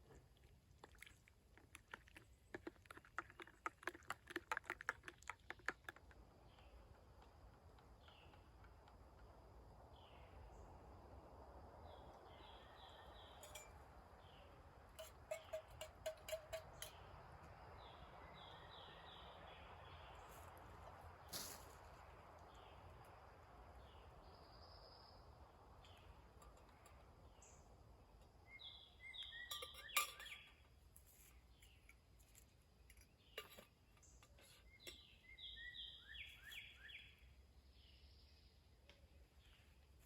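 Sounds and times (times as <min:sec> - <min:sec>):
bird chirping: 0:11.8 - 0:20.5, 0:22.4 - 0:30.8, 0:32.8 - 0:39.7.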